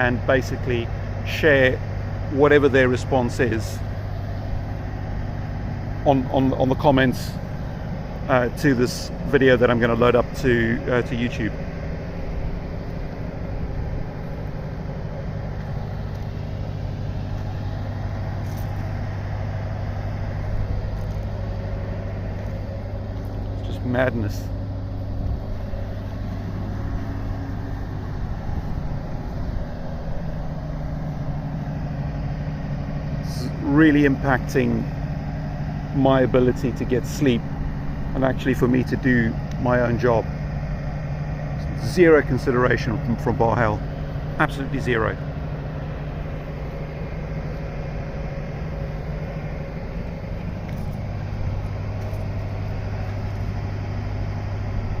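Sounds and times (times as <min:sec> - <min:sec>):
generator running: 0:00.0 - 0:55.0.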